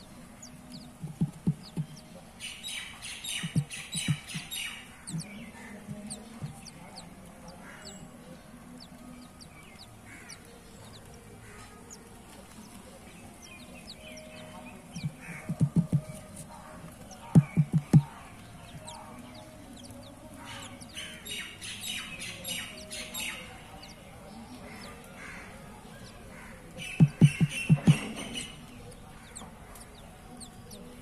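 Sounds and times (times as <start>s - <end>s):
small birds chirping: 0.0s - 31.0s
low thumps: 0.9s - 2.0s, 3.4s - 4.5s, 14.9s - 16.2s, 17.3s - 18.2s, 27.0s - 28.1s
rapid loud chattering: 9.3s - 31.0s.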